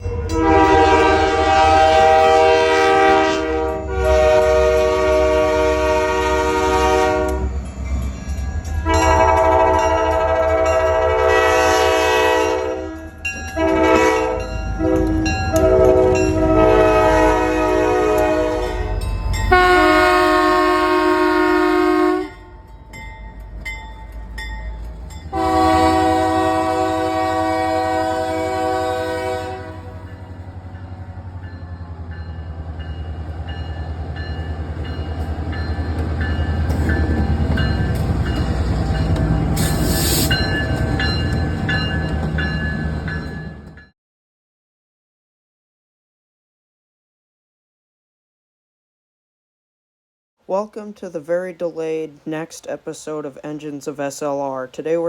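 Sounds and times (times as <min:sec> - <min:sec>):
locomotive air horn blasts: 0:00.0 - 0:07.5, 0:08.8 - 0:22.6, 0:25.3 - 0:30.2, 0:39.6 - 0:40.4.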